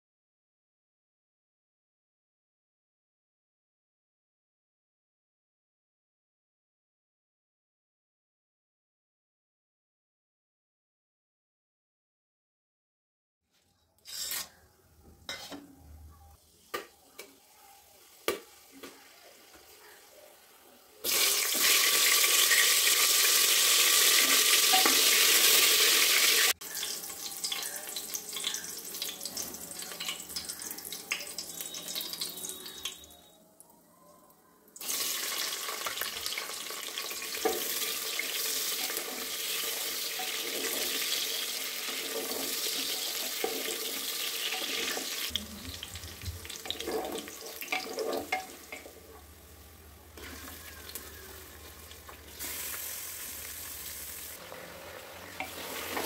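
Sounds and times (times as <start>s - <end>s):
loud frying sizzle: 21.0s - 33.1s, 34.8s - 56.0s
onions sizzling: 21.0s - 33.2s, 34.8s - 56.0s
spices crackling in hot oil: 21.0s - 33.3s, 34.8s - 56.0s
spoon stirring: 45.7s - 48.9s.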